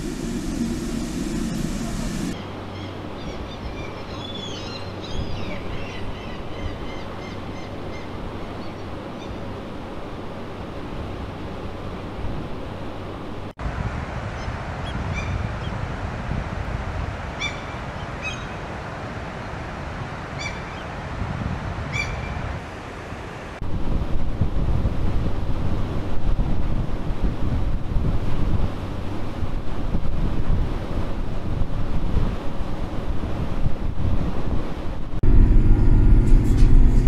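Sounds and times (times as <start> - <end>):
steady rushing background: 0.0 - 2.4, 35.2 - 37.0
low steady hum: 0.0 - 2.6, 35.2 - 37.0.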